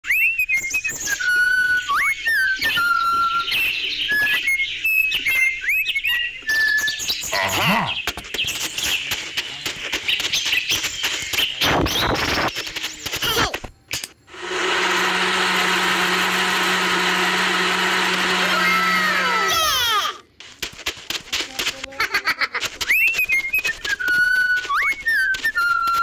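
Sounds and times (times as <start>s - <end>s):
birds chirping and whistling: 0.0s - 13.2s, 22.8s - 26.0s.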